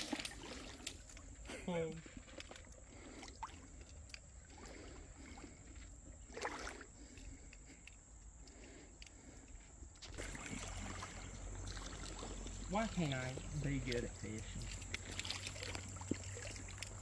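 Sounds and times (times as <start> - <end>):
water swish: 0.0 - 1.4, 2.0 - 7.1, 10.1 - 17.0
creek water trickling: 0.0 - 17.0.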